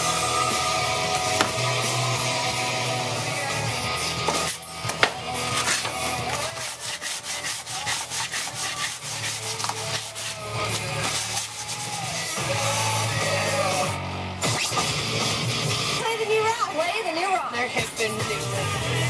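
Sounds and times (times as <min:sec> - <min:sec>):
rock music: 0:00.0 - 0:19.0
sanding strokes: 0:05.4 - 0:12.4.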